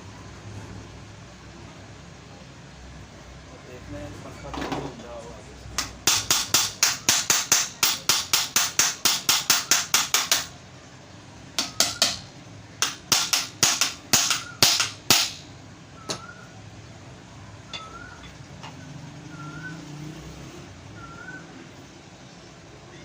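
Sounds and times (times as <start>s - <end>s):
hammer tapping on metal: 5.8s - 10.6s, 11.6s - 15.5s, 17.7s - 18.8s.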